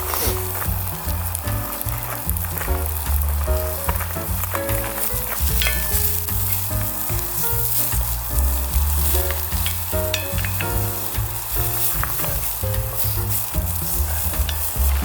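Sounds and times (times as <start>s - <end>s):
background music with bass line: 0.0s - 15.0s
food sizzling as it fries: 0.0s - 15.0s.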